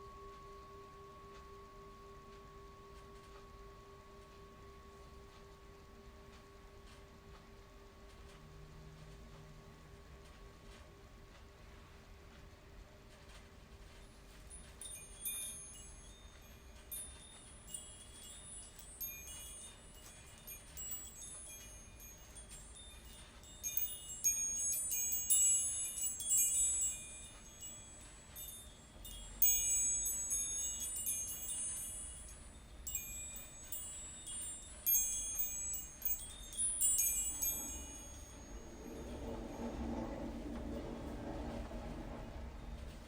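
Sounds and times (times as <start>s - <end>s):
wind chimes ringing: 14.0s - 43.0s.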